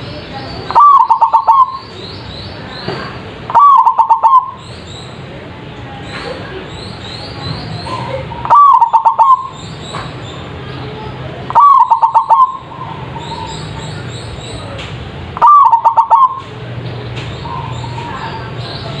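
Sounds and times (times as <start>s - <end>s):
small birds chirping: 0.0s - 19.0s
dove cooing: 0.7s - 1.9s, 3.5s - 4.6s, 8.4s - 9.6s, 11.5s - 13.9s, 15.4s - 16.5s.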